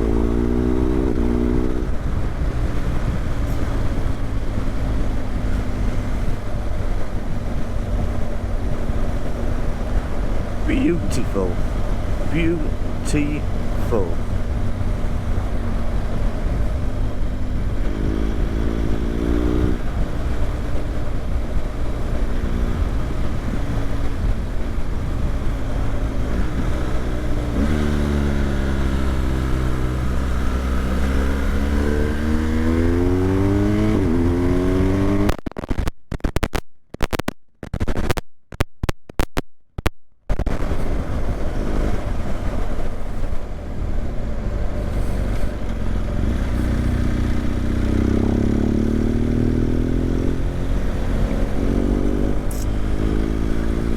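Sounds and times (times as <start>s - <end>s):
motorcycle engine rumble: 0.0s - 35.8s, 39.7s - 53.9s.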